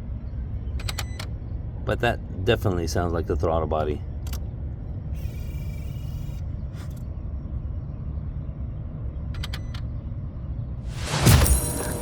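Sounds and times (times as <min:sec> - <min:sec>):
steady low rumble: 0:06.5 - 0:09.3, 0:09.9 - 0:12.0
short motor buzz: 0:11.0 - 0:12.0.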